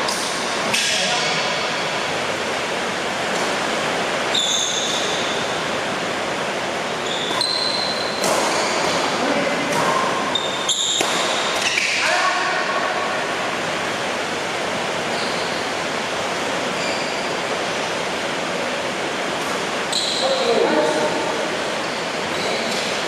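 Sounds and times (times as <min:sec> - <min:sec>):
shoes squeaking on court: 0:04.3 - 0:05.6, 0:07.0 - 0:09.2, 0:10.2 - 0:11.9, 0:15.1 - 0:15.7, 0:16.8 - 0:17.4, 0:19.9 - 0:20.4, 0:21.8 - 0:23.0.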